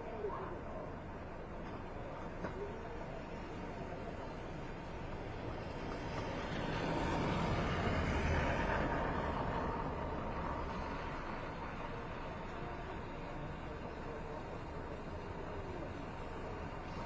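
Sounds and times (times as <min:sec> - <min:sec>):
vehicle passing by: 0:06.2 - 0:11.0.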